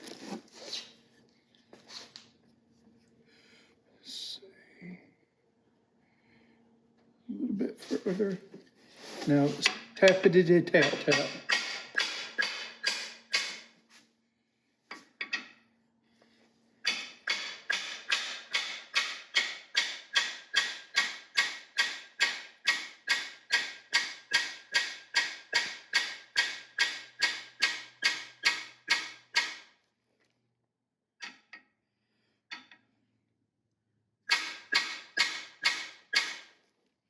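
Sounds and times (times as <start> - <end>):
hammer tapping on metal bar: 10.8 - 13.6, 16.9 - 29.6.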